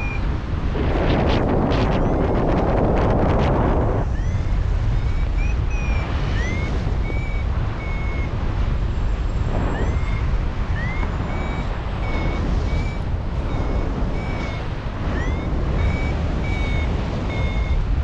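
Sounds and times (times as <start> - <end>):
wind rumbling on microphone: 0.0 - 18.0
variometer beeping: 3.8 - 8.4, 9.6 - 17.8.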